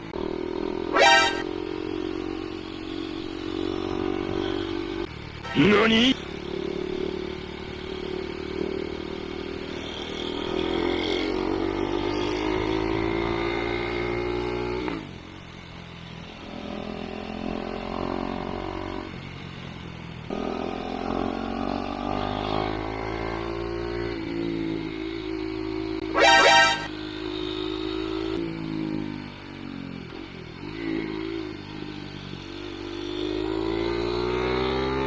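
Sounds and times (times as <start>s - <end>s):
motorcycle engine accelerating: 0.0s - 15.0s, 20.3s - 29.4s
horn blast: 0.8s - 1.5s, 26.1s - 27.0s.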